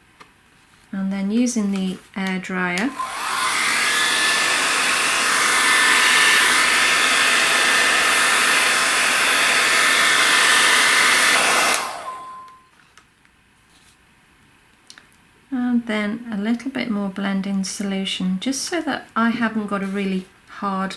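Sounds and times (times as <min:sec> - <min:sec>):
handheld air dryer whooshing: 0:02.8 - 0:12.5.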